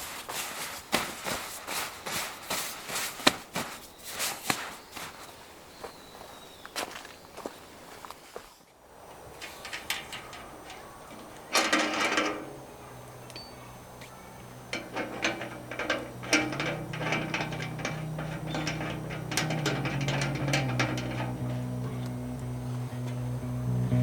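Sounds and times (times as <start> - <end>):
low steady hum: 9.2 - 24.0
mechanical clicking and rattling: 9.3 - 23.3
scraping burst: 9.4 - 23.2.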